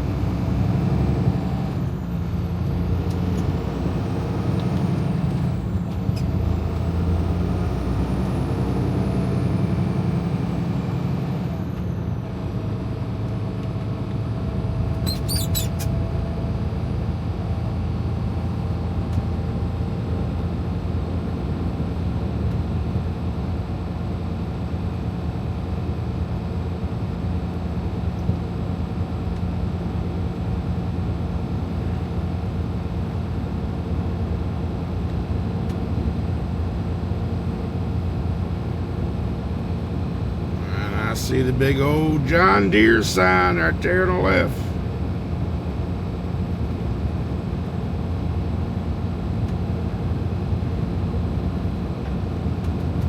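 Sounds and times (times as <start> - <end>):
road noise: 0.0 - 16.8, 36.1 - 53.0
diesel truck engine drone: 0.0 - 53.0.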